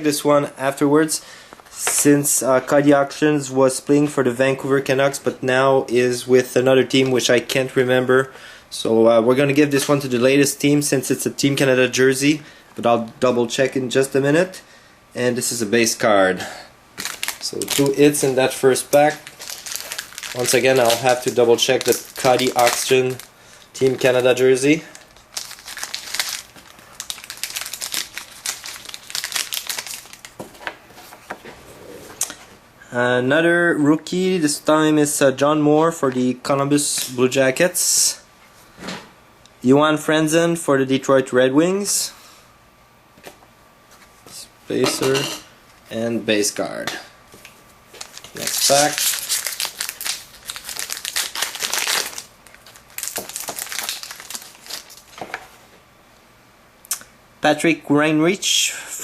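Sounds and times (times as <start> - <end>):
foil wrapper crinkling: 17.0 - 30.8, 47.9 - 55.6.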